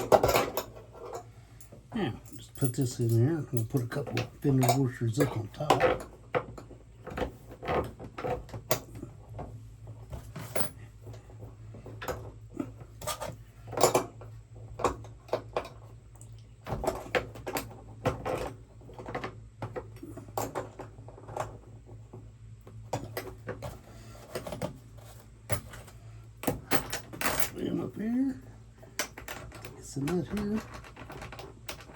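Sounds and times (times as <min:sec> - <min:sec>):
small metal hardware clinking: 0:00.0 - 0:06.1, 0:25.5 - 0:27.8
steady low hum: 0:00.0 - 0:31.9.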